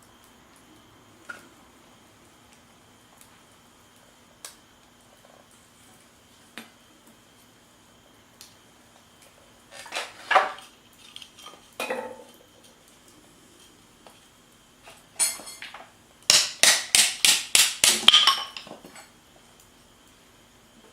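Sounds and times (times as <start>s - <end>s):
light clicks of utensils: 9.2s - 15.9s
cookware clinking and clattering: 9.8s - 12.4s, 15.2s - 15.9s, 18.0s - 19.0s.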